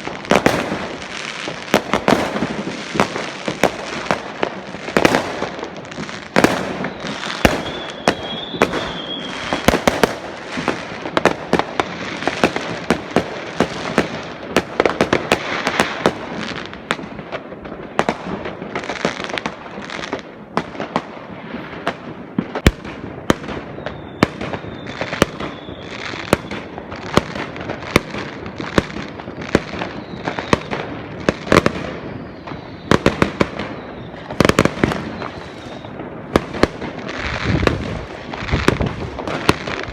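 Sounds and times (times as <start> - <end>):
fireworks bangs and cracks: 0.0 - 39.9
fireworks crackling: 0.0 - 39.9
high wavering whistle: 6.9 - 9.6.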